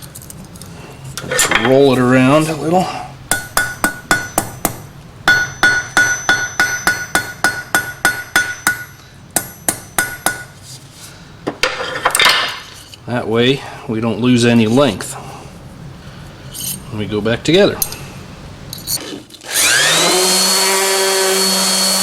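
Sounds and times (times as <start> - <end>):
hammer tapping metal rod: 3.3 - 10.5.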